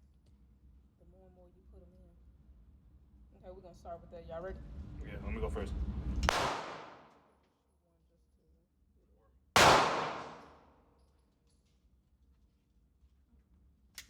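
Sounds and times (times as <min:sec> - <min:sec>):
gunshot with echo: 0:06.3 - 0:07.1, 0:09.6 - 0:10.6.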